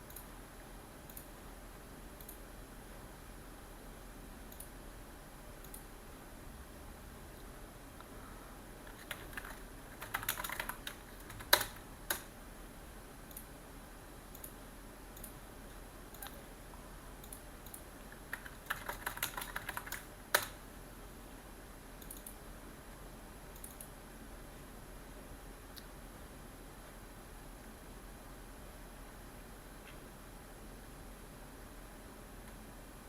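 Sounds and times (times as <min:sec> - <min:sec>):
typing on computer keyboard: 0:08.8 - 0:12.3, 0:17.2 - 0:20.6.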